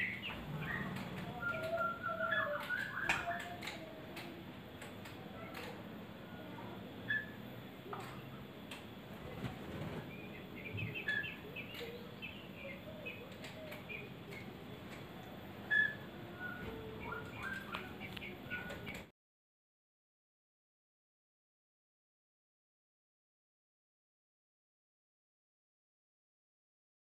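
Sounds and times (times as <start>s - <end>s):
bird chirping: 0.0s - 3.8s, 7.1s - 7.4s, 10.0s - 14.6s, 15.6s - 19.0s
bird clicks: 2.6s - 5.8s.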